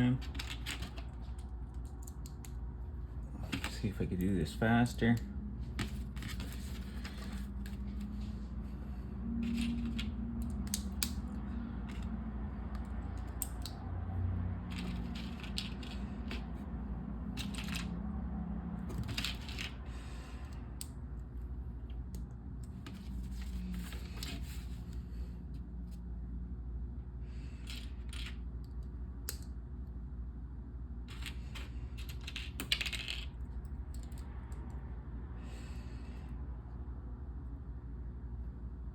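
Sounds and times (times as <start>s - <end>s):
low steady hum: 0.0s - 38.9s
plastic bricks clicking and clattering: 9.4s - 12.1s, 14.7s - 16.6s, 17.3s - 17.9s, 18.9s - 19.8s, 27.6s - 29.5s, 31.1s - 34.2s.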